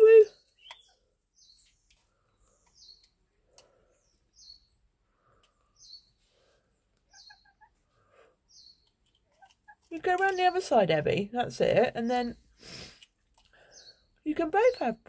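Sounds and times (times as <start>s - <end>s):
soft low bird calls: 0.1s - 9.8s
faint bird chirps: 0.2s - 9.8s, 13.6s - 15.0s.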